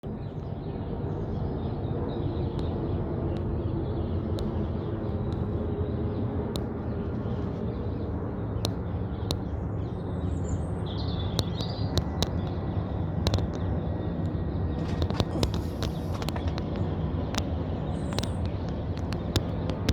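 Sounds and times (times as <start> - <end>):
jet engines roaring: 0.0 - 19.9
bird chirps: 0.1 - 19.9
clicks: 11.3 - 12.6, 13.2 - 13.6, 14.2 - 19.9.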